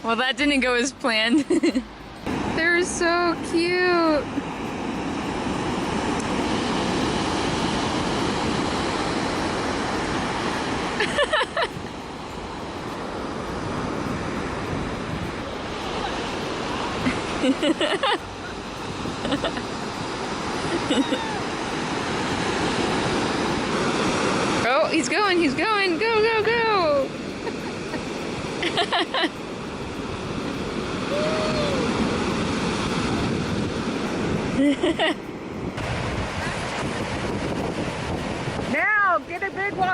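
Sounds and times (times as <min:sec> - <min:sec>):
ocean surf washing: 0:00.0 - 0:39.9
wind buffeting the microphone: 0:00.0 - 0:39.9
high voice-like cries: 0:20.8 - 0:21.5, 0:31.1 - 0:31.9.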